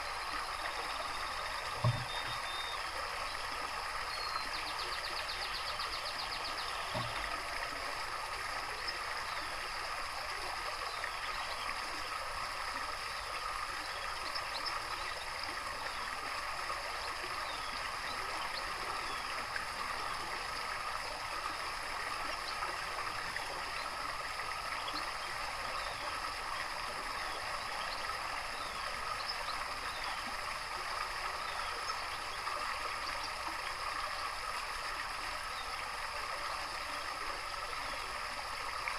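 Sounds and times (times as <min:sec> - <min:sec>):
faint bird chirps: 0:00.0 - 0:03.4, 0:04.0 - 0:07.4
running water: 0:00.0 - 0:38.9.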